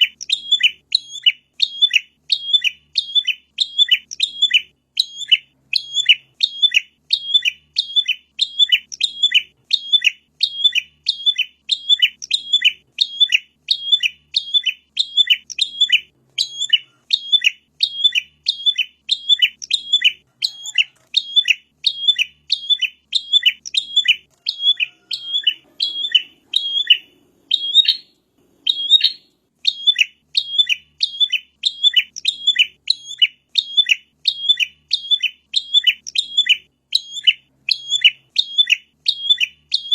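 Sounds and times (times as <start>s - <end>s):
bird sharp high chirps: 0.0s - 39.9s.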